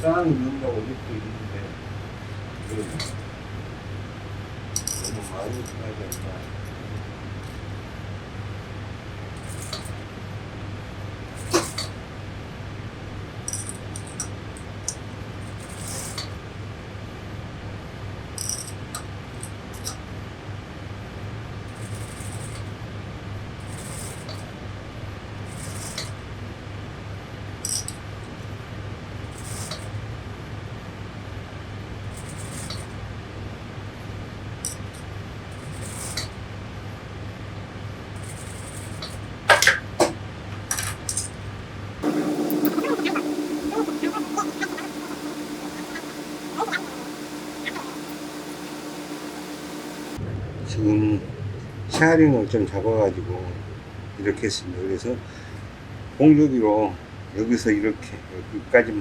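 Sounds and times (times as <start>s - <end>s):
steady low hum: 42.0s - 50.2s.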